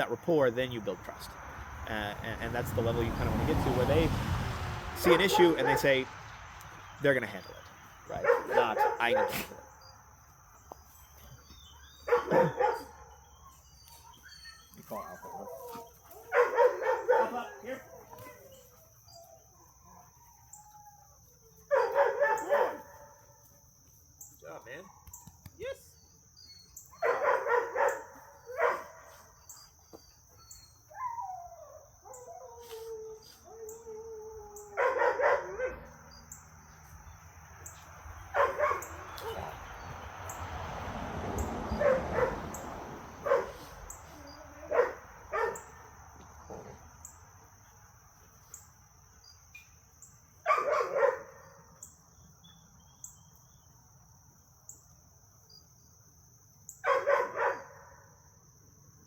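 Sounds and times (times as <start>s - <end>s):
dogs barking: 5.0s - 6.1s, 7.5s - 9.8s, 11.7s - 18.7s, 21.6s - 23.3s, 26.8s - 30.1s, 34.6s - 36.1s, 37.6s - 40.4s, 41.4s - 46.9s, 50.4s - 51.7s, 56.8s - 58.1s
dog whining or howling: 11.9s - 21.3s, 30.4s - 35.9s.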